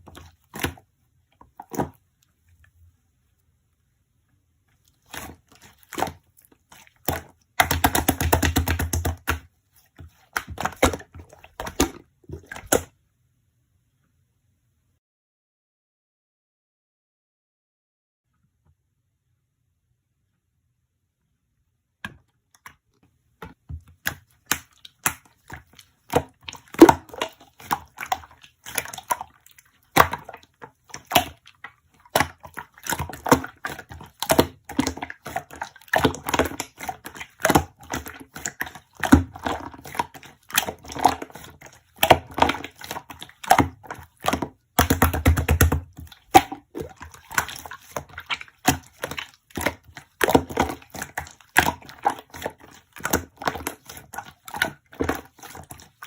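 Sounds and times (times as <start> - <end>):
sharp clicks taps and crunches: 7.0 - 9.4.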